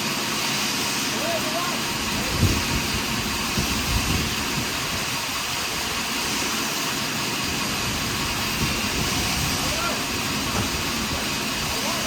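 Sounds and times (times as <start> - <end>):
sawmill saw cutting log: 0.0 - 12.0.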